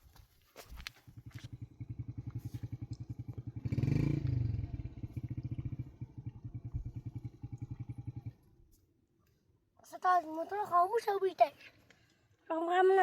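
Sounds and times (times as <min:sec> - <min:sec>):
motorcycle engine idling: 0:00.8 - 0:08.7.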